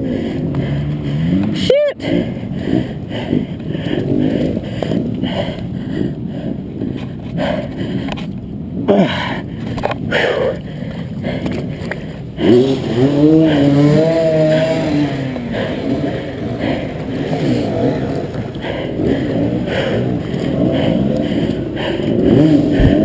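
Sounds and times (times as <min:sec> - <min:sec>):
dirt bike engine revving: 0:00.0 - 0:05.4, 0:11.4 - 0:23.0.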